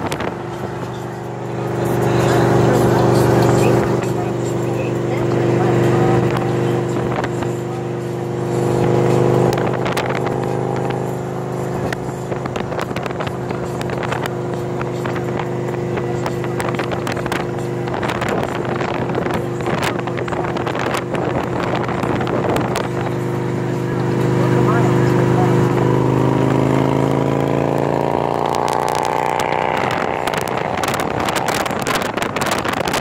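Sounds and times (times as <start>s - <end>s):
motorcycle engine running steadily: 0.0s - 33.0s
wind buffeting microphone: 8.8s - 24.3s, 25.6s - 33.0s.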